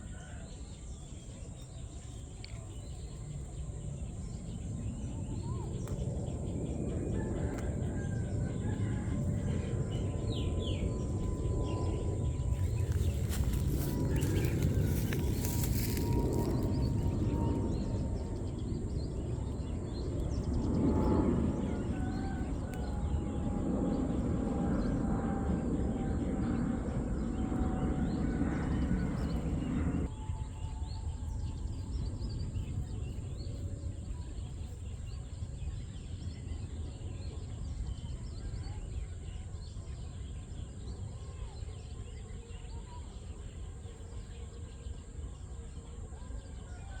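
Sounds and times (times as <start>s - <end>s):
steady rushing noise: 11.0s - 25.0s
faint bird calls: 12.5s - 18.4s.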